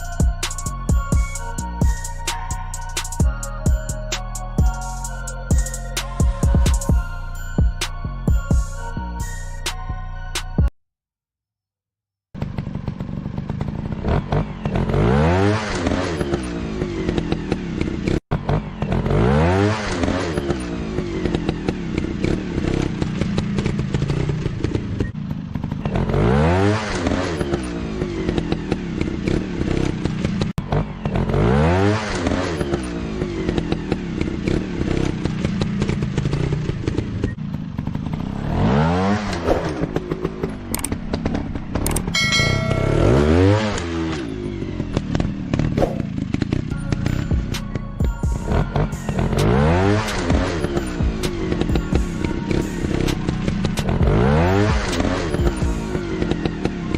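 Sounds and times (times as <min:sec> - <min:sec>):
dirt bike engine revving: 0:12.4 - 0:56.9.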